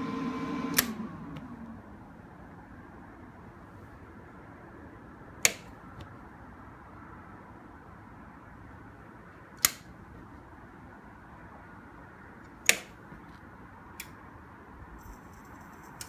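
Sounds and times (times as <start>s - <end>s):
welder power switch clicks: 0.6s - 1.5s, 5.4s - 5.8s, 9.6s - 9.9s, 12.6s - 13.0s.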